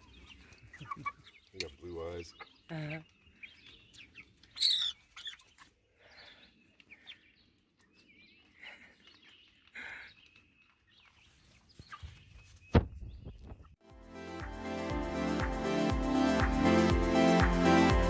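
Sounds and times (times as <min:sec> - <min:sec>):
chicks peeping and chirping: 0:00.0 - 0:13.6.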